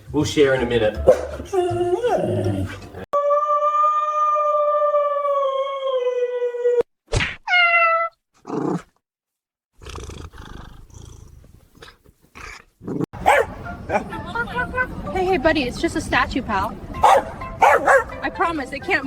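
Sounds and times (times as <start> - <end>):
pet wailing cry: 7.5 - 8.2.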